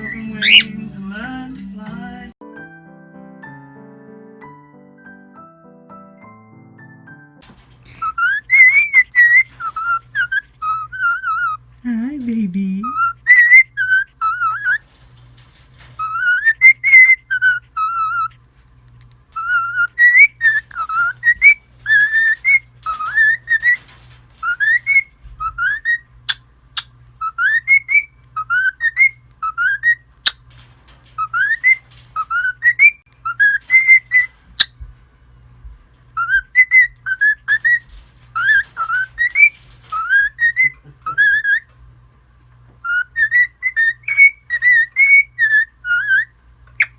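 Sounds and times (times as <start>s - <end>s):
cockatiel whistling: 0.0s - 0.8s, 7.9s - 11.6s, 13.0s - 14.9s, 16.0s - 18.3s, 19.4s - 30.4s, 31.2s - 34.8s, 36.1s - 41.7s, 42.8s - 46.9s.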